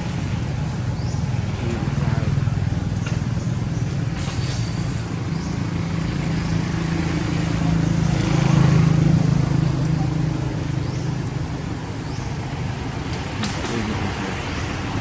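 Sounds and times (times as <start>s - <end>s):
vehicle engine passing: 0.0s - 15.0s.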